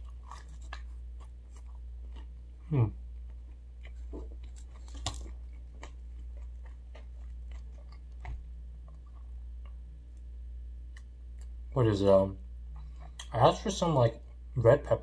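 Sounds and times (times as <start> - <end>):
chewing pizza crust: 0.0 - 10.2
low steady hum: 0.0 - 15.0.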